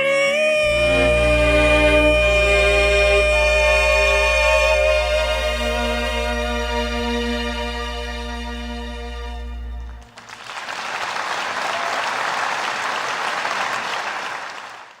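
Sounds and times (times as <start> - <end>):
held music chord: 0.0 - 10.1
audience applause: 10.0 - 15.0.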